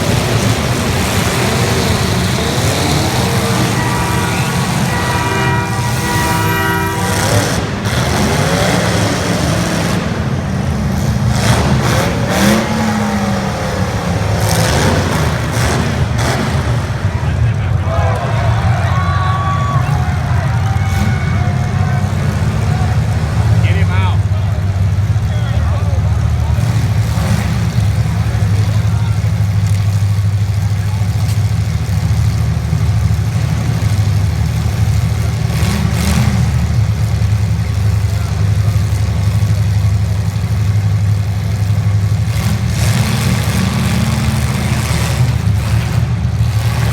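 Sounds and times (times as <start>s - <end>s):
car engines revving hard: 0.0s - 46.9s.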